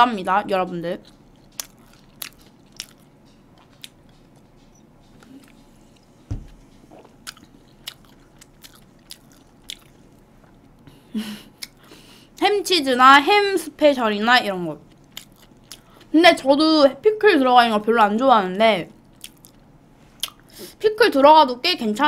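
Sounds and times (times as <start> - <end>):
person chewing crunchy sandwich: 1.0 - 10.9, 14.8 - 16.0, 19.0 - 20.5
low thump: 6.3 - 6.6.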